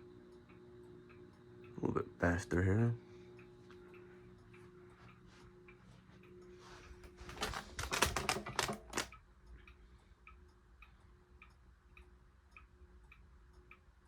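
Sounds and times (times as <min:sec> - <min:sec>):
ceiling fan running: 0:00.0 - 0:14.0
fan ticking: 0:00.0 - 0:14.0
clatter of switch clicks: 0:07.0 - 0:09.2.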